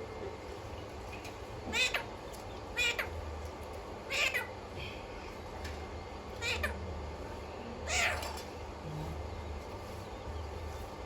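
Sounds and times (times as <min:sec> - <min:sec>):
parrot harsh calls: 0:01.7 - 0:02.1, 0:02.7 - 0:03.1, 0:04.1 - 0:04.5.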